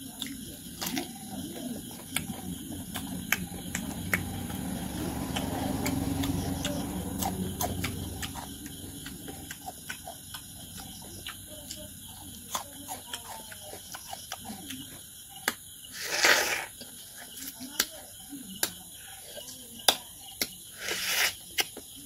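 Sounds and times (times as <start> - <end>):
chewing clicks and smacks: 0.0 - 15.7.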